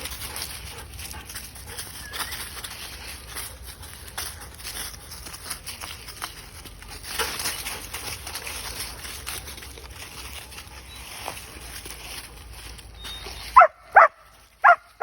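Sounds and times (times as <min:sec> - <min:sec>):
footsteps on forest floor: 0:00.0 - 0:15.0.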